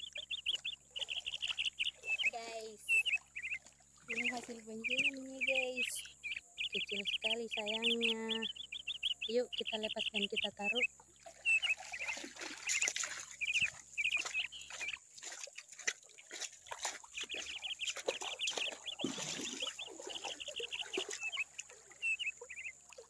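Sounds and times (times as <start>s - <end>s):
small splashes in water: 0.0s - 5.2s, 10.8s - 23.0s
bird chirping: 0.0s - 15.4s, 17.0s - 22.8s.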